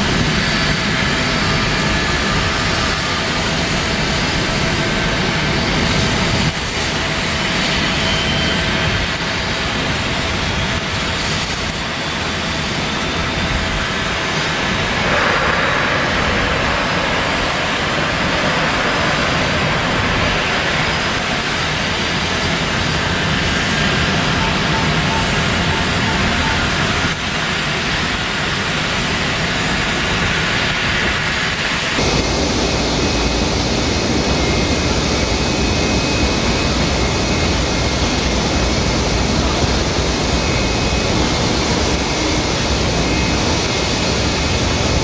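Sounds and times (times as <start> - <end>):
jet engines running: 0.0 - 45.0.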